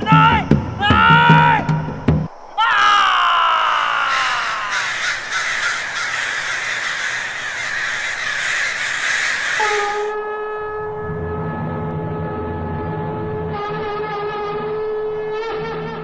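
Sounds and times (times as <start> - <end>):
crows cawing: 2.4 - 10.1
held musical note over drone: 9.7 - 16.0.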